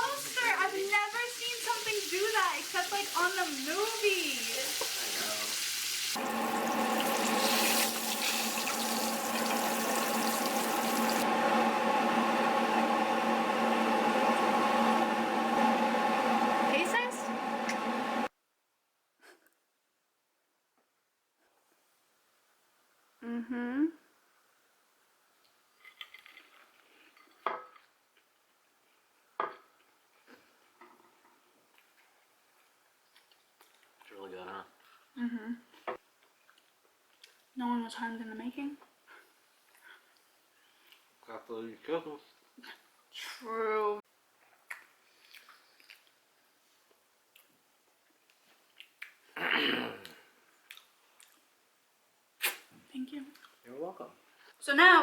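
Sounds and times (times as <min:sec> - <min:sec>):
chicken sizzling in oil: 0:00.0 - 0:16.8.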